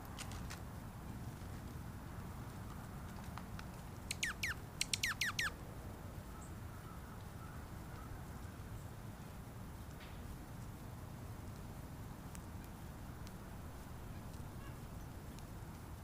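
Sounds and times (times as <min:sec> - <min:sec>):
bird calling sharp falling notes: 0:04.1 - 0:05.5.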